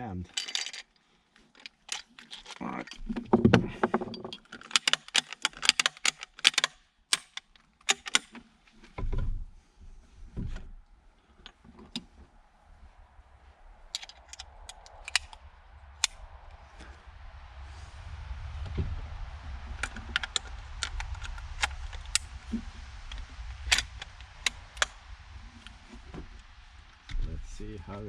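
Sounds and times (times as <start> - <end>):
rifle bolt clicks and rattles: 0.3 - 8.4, 14.0 - 15.4.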